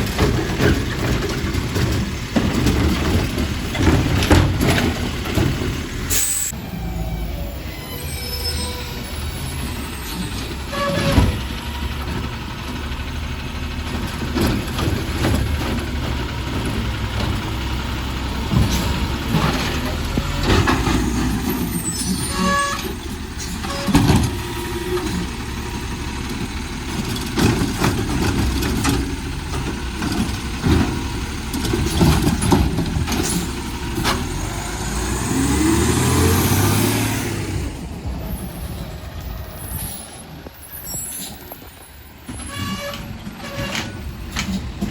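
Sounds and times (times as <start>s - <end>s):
metal clanks and bangs: 0.0s - 6.2s, 13.9s - 25.4s, 26.3s - 34.8s, 41.2s - 44.9s
garbage truck diesel engine: 0.0s - 44.9s.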